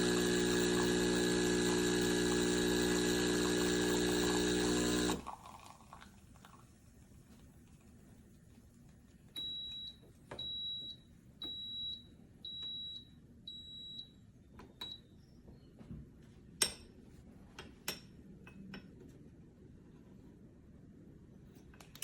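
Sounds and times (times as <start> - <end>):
appliance beeper beeping: 9.4 - 14.2.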